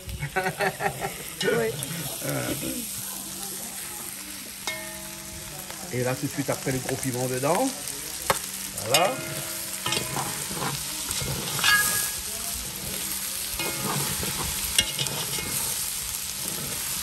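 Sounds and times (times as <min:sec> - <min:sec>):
food sizzling in a pot: 0:00.0 - 0:17.0
metal utensil scraping a pot: 0:08.8 - 0:17.0.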